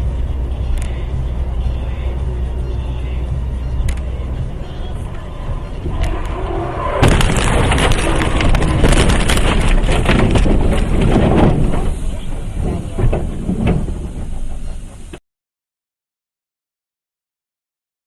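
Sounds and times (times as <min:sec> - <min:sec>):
vehicle crash impact: 0:04.7 - 0:15.2
crunching and scraping metal: 0:05.8 - 0:15.2.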